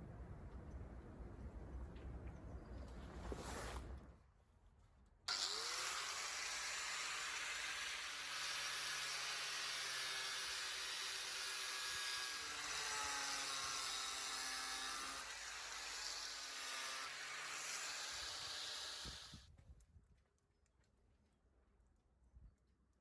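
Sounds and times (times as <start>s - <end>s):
power tool cutting metal gutter: 5.3s - 19.4s.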